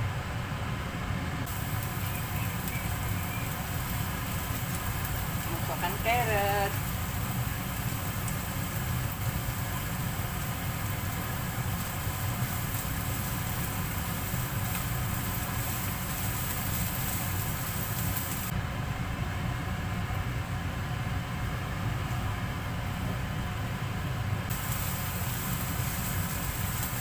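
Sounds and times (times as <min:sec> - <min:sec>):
food frying in oil: 0:01.4 - 0:18.6, 0:24.4 - 0:27.0.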